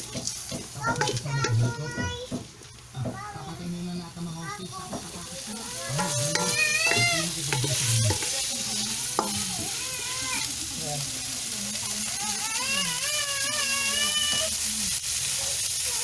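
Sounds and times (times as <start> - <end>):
spatula scraping wok: 0.0 - 2.0, 5.0 - 10.8
meat sizzling in a wok: 0.0 - 16.0.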